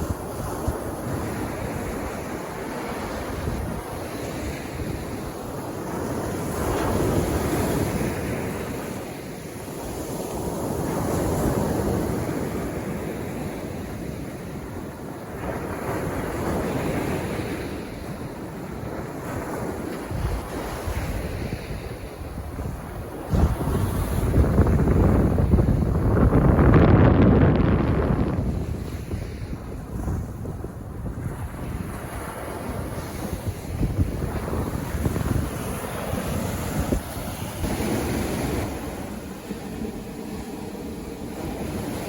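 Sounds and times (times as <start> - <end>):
sea waves breaking on beach: 0.0 - 42.0
wind buffeting microphone: 0.0 - 42.0.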